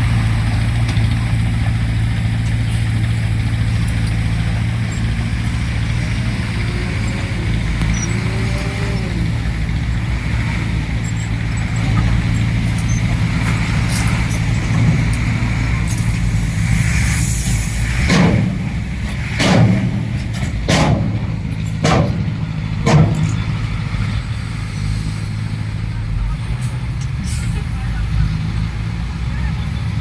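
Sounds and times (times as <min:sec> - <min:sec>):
diesel earthmoving machinery running: 0:00.0 - 0:30.0
sharp clunks: 0:18.0 - 0:24.2.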